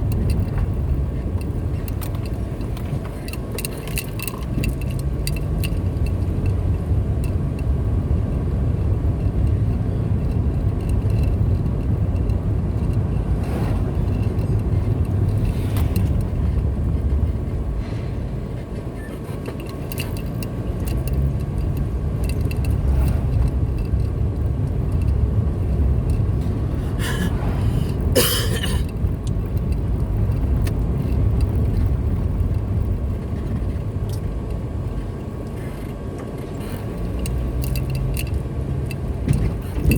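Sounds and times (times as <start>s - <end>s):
light clicks and rattles: 0.0s - 27.2s, 27.8s - 39.9s
car engine and tyre rumble: 0.0s - 39.9s.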